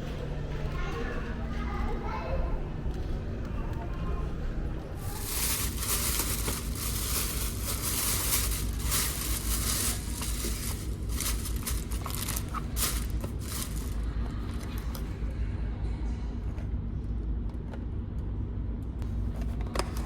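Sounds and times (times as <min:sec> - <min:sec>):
plastic packaging crinkling and tearing: 0:05.0 - 0:15.1.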